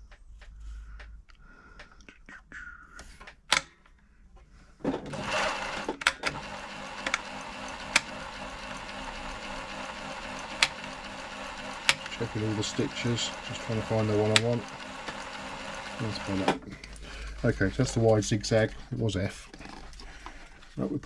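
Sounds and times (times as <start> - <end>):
sewing machine handling clicks: 5.1 - 8.1
sewing machine running: 5.1 - 18.1.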